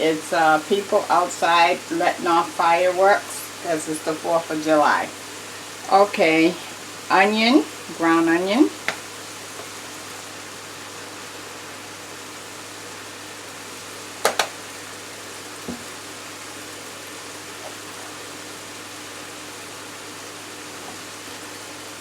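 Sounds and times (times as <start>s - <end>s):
vegetables sizzling in a pan: 0.0s - 22.0s
sharp knocks: 14.2s - 14.5s.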